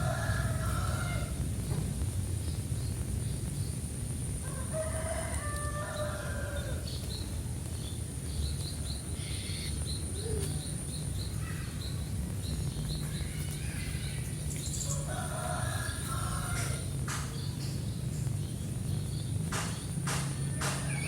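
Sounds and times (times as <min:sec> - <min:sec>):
rooster crowing: 0:00.0 - 0:01.4, 0:04.4 - 0:06.8, 0:14.9 - 0:17.0
low wind rumble: 0:00.0 - 0:21.0
small birds chirping: 0:05.8 - 0:21.0.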